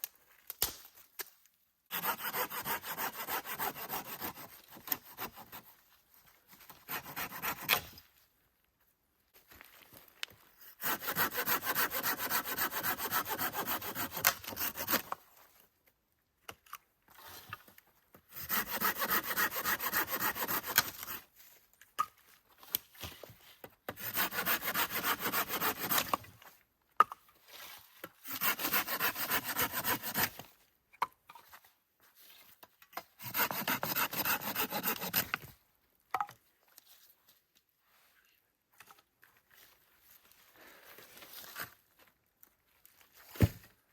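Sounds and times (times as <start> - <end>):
hand saw cutting wood: 1.9 - 5.8, 6.7 - 8.0, 10.8 - 15.1, 18.3 - 21.3, 23.9 - 26.2, 28.2 - 30.4, 33.2 - 35.5.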